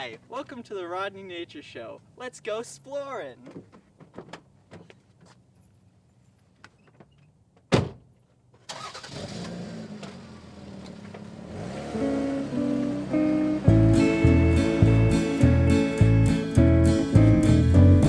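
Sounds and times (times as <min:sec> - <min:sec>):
car door shutting: 0:07.7 - 0:08.0
car engine starting and running: 0:08.7 - 0:18.0
guitar music: 0:11.4 - 0:18.0.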